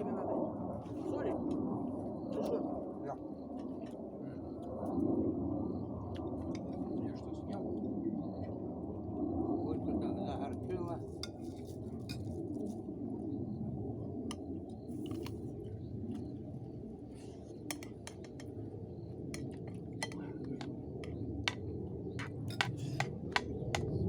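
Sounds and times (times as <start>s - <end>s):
cutlery clinking on plates: 17.7s - 18.5s, 19.4s - 21.6s, 22.2s - 23.2s.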